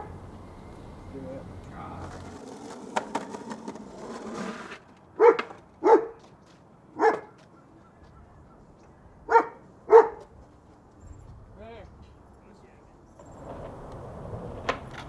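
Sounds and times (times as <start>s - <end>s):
dog barking: 5.2s - 6.2s, 7.0s - 7.4s, 9.3s - 10.3s.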